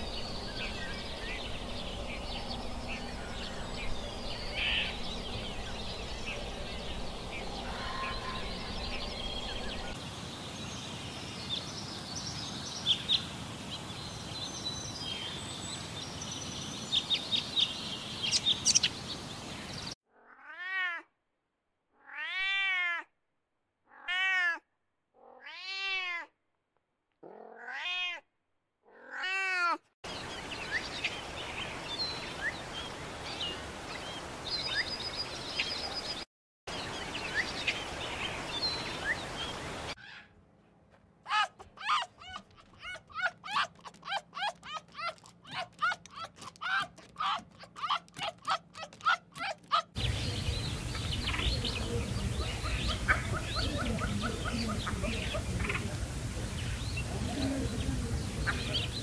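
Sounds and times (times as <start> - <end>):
outdoor background noise: 0.0 - 21.0, 23.8 - 59.0
cat meowing: 20.2 - 21.0, 22.0 - 23.1, 23.9 - 24.6, 25.2 - 26.3, 27.2 - 28.2, 28.9 - 29.8.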